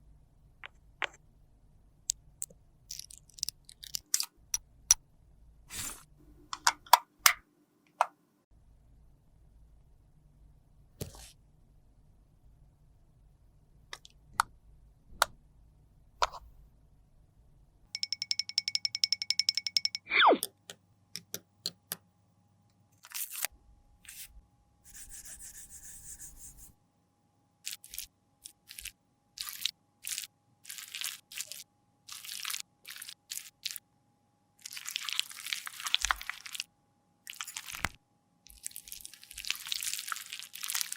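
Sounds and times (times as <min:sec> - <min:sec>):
clicks and taps: 0:18.0 - 0:22.0.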